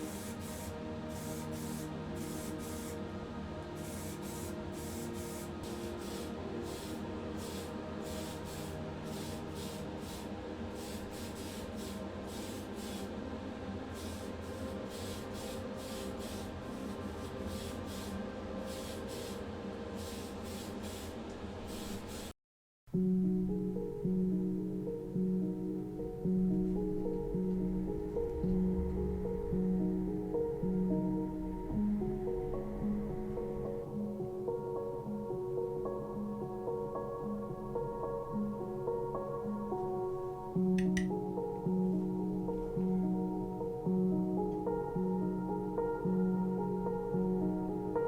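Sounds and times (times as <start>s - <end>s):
spray paint hissing: 0.0s - 3.0s, 3.8s - 13.2s, 13.9s - 22.3s.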